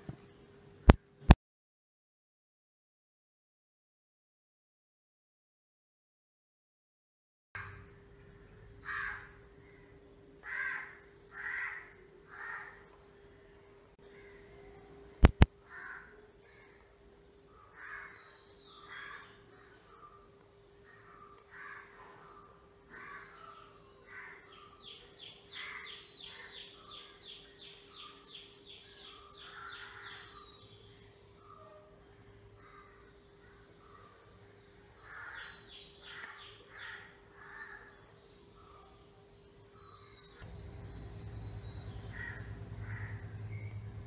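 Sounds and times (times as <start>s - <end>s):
birds calling: 7.6s - 44.0s
loud sharp clicks: 15.2s - 15.5s
steady low hum: 39.5s - 44.0s.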